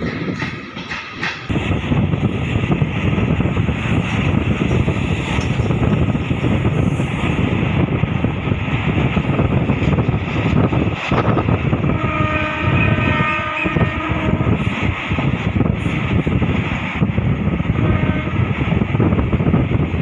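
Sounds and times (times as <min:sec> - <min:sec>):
train rumble and wind noise: 0:00.0 - 0:20.0
train horn blast: 0:11.8 - 0:14.6, 0:17.8 - 0:18.6.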